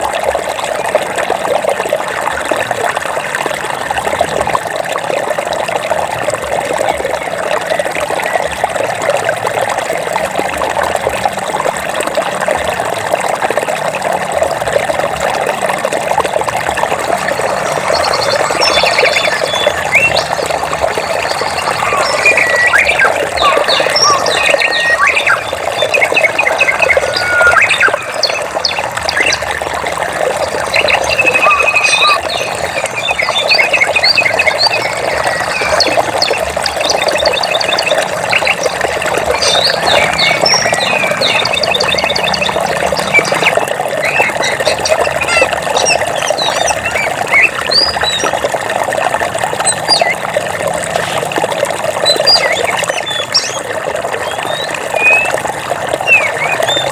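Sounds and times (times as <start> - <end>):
stream water rushing: 0.0 - 56.9
birds chirping and trilling: 16.9 - 48.4, 49.6 - 50.2, 52.0 - 56.9.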